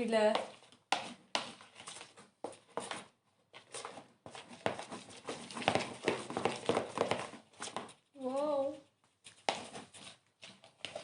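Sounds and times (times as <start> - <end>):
slime being stirred in a bowl: 0.0 - 11.0.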